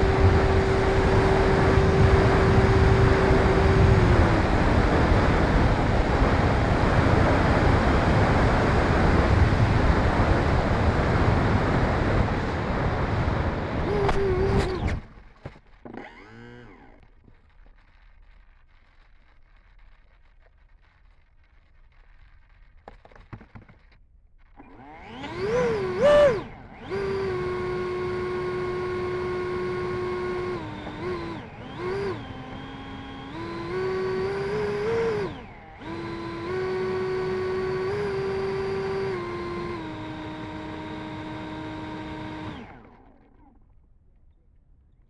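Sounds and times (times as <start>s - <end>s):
electric ducted fan whine: 0.0s - 15.4s, 24.6s - 43.7s.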